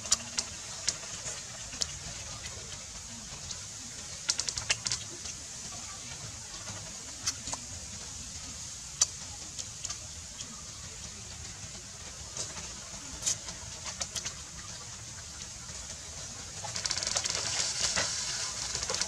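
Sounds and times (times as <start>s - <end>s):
steady low hiss: 0.0s - 19.0s.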